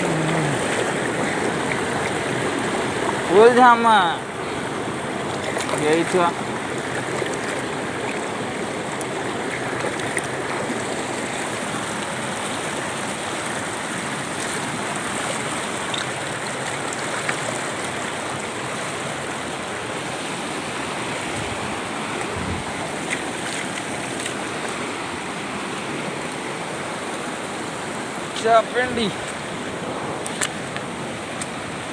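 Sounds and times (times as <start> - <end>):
flowing water rushing: 0.0 - 31.9.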